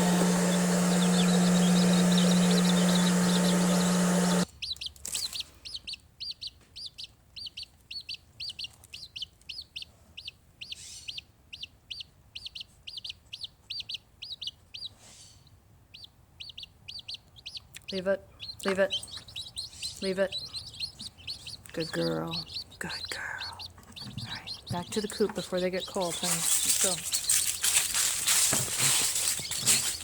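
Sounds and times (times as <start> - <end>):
loud whirring machine: 0.0 - 4.5
baby chicks peeping: 0.0 - 30.0.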